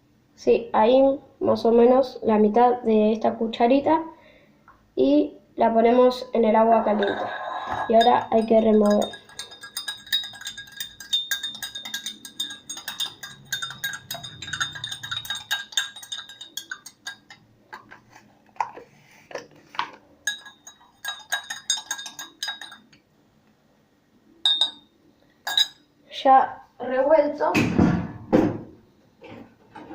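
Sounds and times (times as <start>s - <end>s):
spoon clinking against container: 7.0s - 17.9s, 20.2s - 23.0s, 24.5s - 24.9s, 25.5s - 25.8s.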